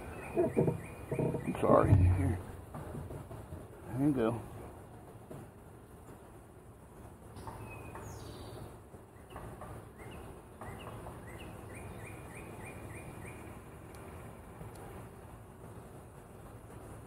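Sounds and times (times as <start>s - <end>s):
small songbird chirping: 0.0s - 2.4s, 7.3s - 13.7s.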